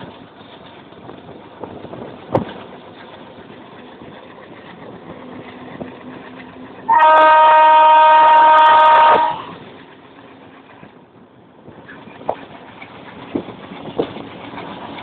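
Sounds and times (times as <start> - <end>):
train engine idling: 0.0 - 15.0
multi-tone train horn: 6.9 - 9.6.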